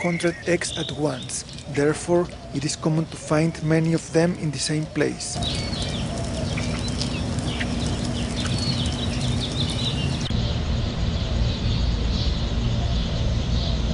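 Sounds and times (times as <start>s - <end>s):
birds chirping: 0.0s - 13.9s
low background rumble: 5.3s - 13.9s.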